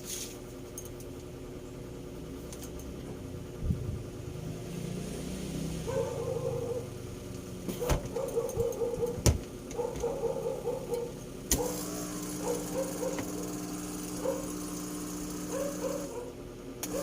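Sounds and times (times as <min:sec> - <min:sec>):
hair dryer motor humming: 0:11.5 - 0:17.0.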